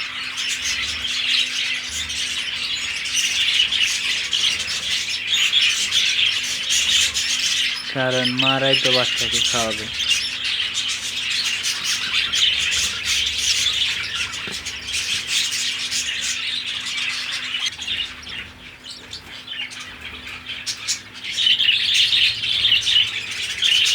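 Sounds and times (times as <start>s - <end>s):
budgerigars chattering: 0.0s - 23.9s.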